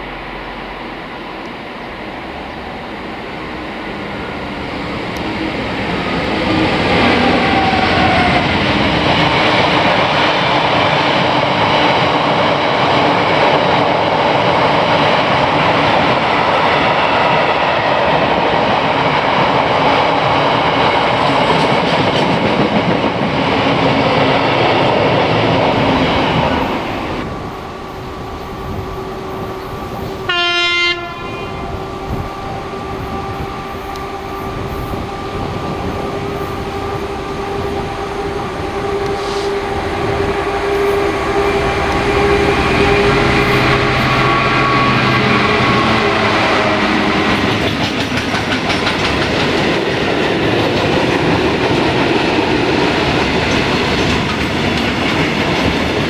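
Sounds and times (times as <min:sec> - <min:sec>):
quiet train hum: 0:00.0 - 0:56.0
train passing close by: 0:00.0 - 0:56.0
train horn blast: 0:25.7 - 0:47.5.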